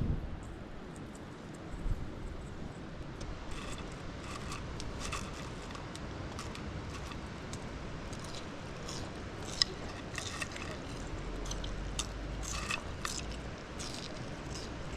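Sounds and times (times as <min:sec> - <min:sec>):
french fries crunching: 0:03.4 - 0:14.9.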